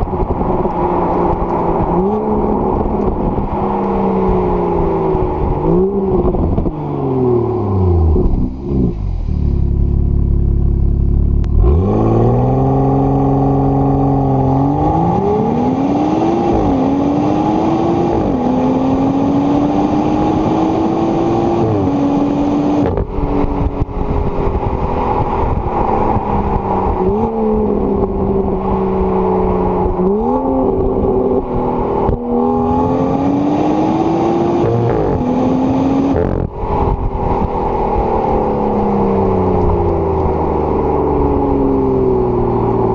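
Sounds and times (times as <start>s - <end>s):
car engine accelerating: 0.0s - 42.9s.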